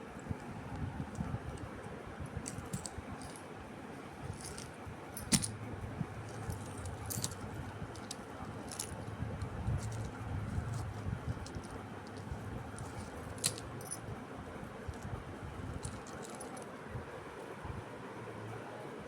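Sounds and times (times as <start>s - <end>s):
low steady hum: 0.0s - 19.0s
light metallic clinks and jingles: 2.4s - 3.4s, 4.3s - 14.2s, 14.8s - 16.8s.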